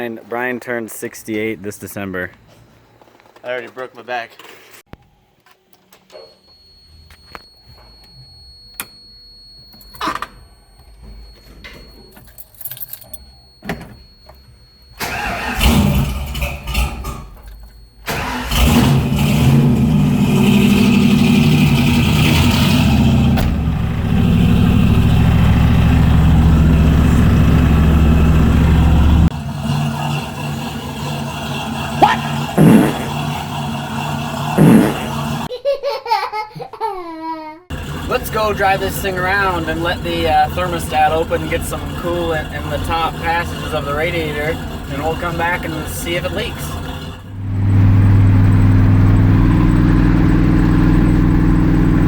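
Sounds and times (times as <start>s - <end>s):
engine starting and running: 14.9s - 35.5s, 37.7s - 52.0s.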